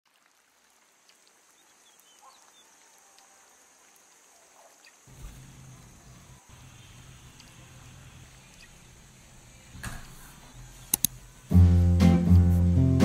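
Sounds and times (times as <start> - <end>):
steady high hiss: 0.3 - 13.0
low steady hum: 5.1 - 12.4.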